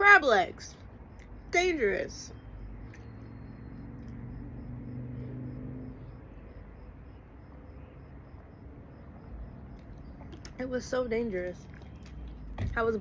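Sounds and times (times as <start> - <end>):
outdoor background noise: 0.0 - 13.0
vehicle engine humming: 0.0 - 13.0
faint high chirp: 1.9 - 4.0.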